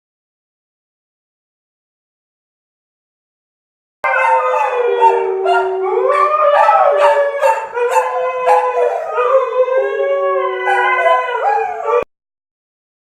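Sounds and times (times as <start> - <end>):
dogs howling: 4.0 - 12.1.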